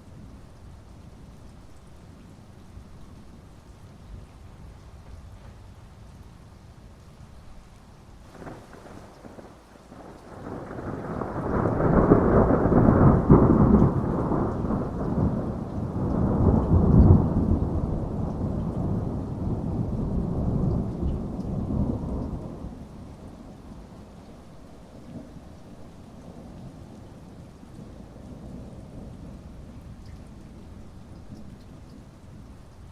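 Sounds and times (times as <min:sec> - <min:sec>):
steady rain: 0:00.0 - 0:32.9
thunder rumbling: 0:08.3 - 0:24.0.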